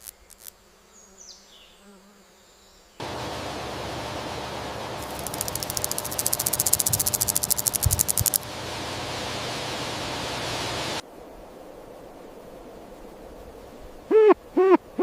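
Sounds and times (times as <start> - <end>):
steady hiss: 3.0 - 14.1
insect calling in rapid pulses: 5.0 - 8.5.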